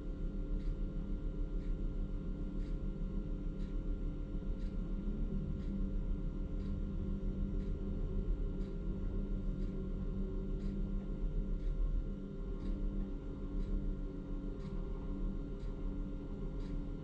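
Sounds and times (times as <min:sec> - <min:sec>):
faint ticking: 0:07.4 - 0:17.0.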